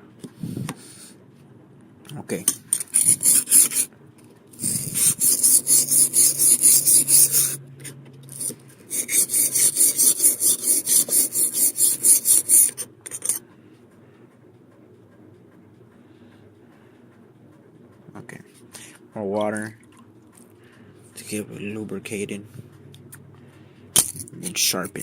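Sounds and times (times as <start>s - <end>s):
blade scraping on sharpening stone: 2.7s - 3.9s, 4.6s - 13.4s.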